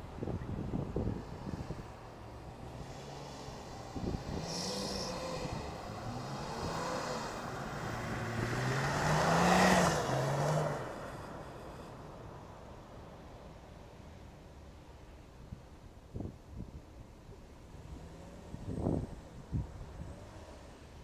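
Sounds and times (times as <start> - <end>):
car engines revving: 0.0 - 13.3, 17.6 - 21.0.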